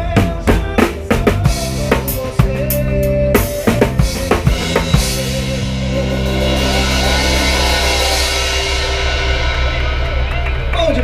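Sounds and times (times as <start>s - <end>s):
live band music: 0.0s - 11.0s
drum hit: 3.9s - 11.0s
cymbals ringing: 4.9s - 11.0s.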